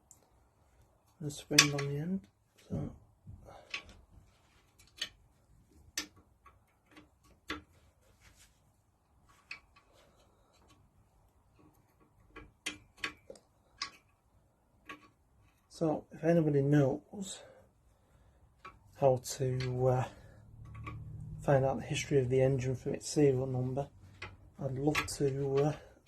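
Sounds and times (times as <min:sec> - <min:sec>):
tools and parts clicking: 0:01.4 - 0:02.0, 0:03.5 - 0:04.0, 0:04.6 - 0:07.9, 0:09.3 - 0:10.9, 0:11.5 - 0:15.7, 0:18.6 - 0:22.1, 0:24.0 - 0:26.0.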